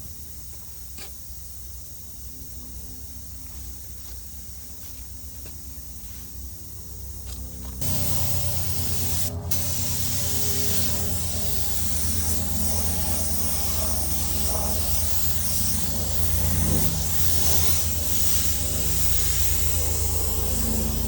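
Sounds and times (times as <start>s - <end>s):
low hum: 7.8s - 21.0s
paint spray gun hissing: 7.8s - 21.0s.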